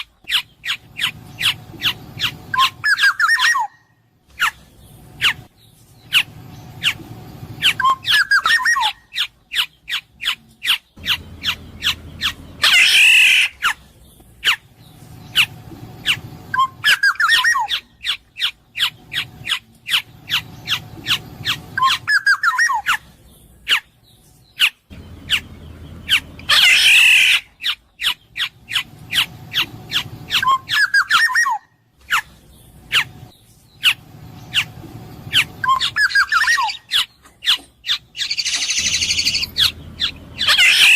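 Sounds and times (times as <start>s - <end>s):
bird fluting whistles: 0.4s - 4.6s, 7.6s - 13.8s, 15.3s - 23.0s, 25.3s - 32.3s, 35.3s - 37.6s, 38.2s - 40.9s
harsh nasal squawk: 7.6s - 13.8s, 26.1s - 32.3s, 35.3s - 40.9s.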